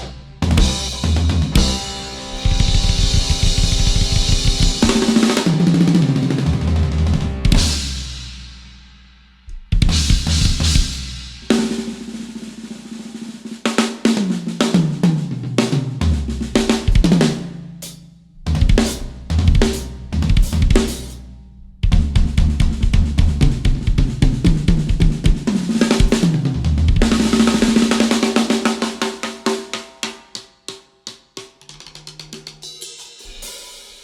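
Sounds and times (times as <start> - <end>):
tom fills: 0.0 - 7.8, 16.4 - 22.0
drum kit played hard: 0.0 - 34.0.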